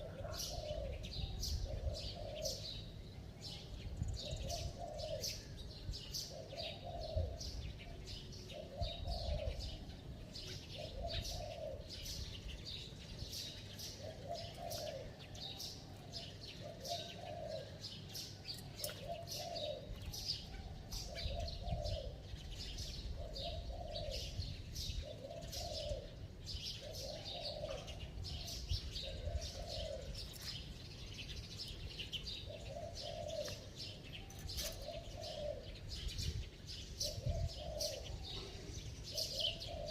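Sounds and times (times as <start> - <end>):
dove cooing: 0.0 - 2.8, 4.1 - 7.7, 8.4 - 12.8, 13.8 - 30.4, 32.3 - 36.4, 37.0 - 39.9
small birds chirping: 0.0 - 39.9.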